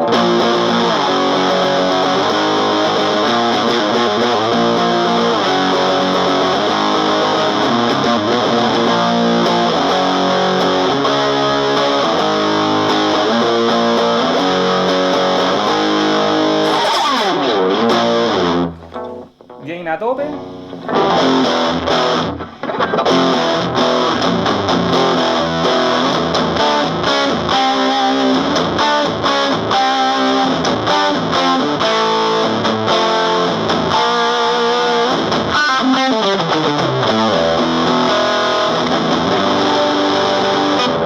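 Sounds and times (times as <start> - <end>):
amplifier noise: 0.0 - 28.8
distorted electric guitar riffing: 0.0 - 41.0.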